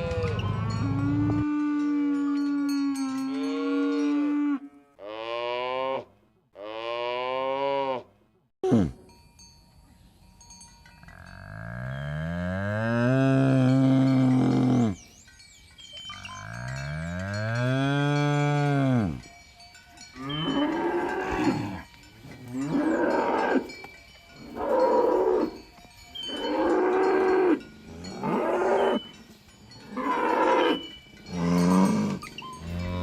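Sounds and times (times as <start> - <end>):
cattle mooing: 0.0 - 6.0, 20.2 - 21.9, 22.5 - 23.8, 26.3 - 29.0.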